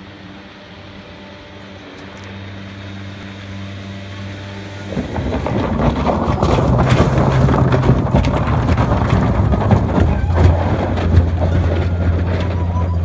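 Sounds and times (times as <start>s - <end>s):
low motor drone: 0.0s - 13.0s
wind buffeting microphone: 4.8s - 13.0s.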